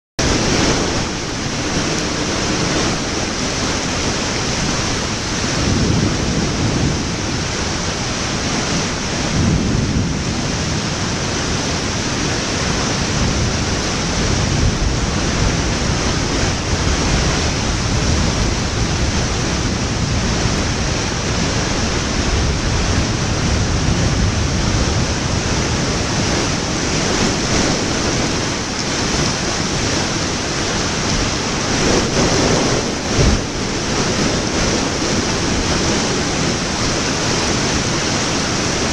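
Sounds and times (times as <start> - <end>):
loud rushing noise: 0.2 - 38.9.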